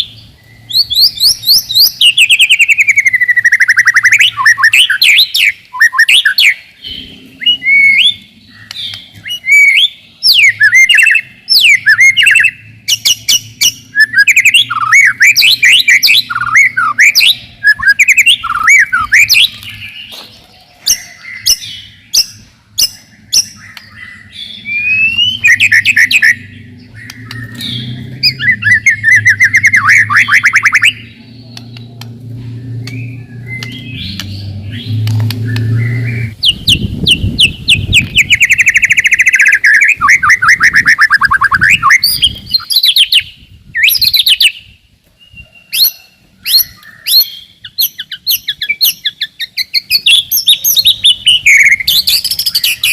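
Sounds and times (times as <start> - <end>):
bird singing whistled phrases: 0.0 - 19.9, 20.8 - 31.9, 32.7 - 52.9
sharp clicking bird notes: 8.1 - 9.2, 18.4 - 24.1, 25.0 - 36.9.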